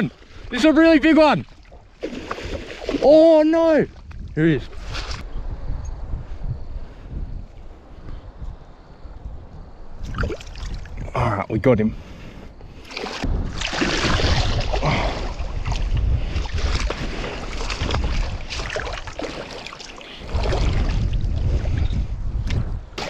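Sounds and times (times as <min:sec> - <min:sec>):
shallow water splashing: 0:00.0 - 0:03.6, 0:10.0 - 0:11.0, 0:12.7 - 0:21.9
wind on microphone: 0:00.0 - 0:23.0.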